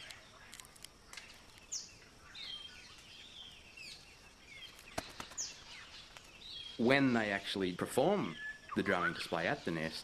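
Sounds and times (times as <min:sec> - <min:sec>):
whistled bird calls: 0:08.1 - 0:10.0.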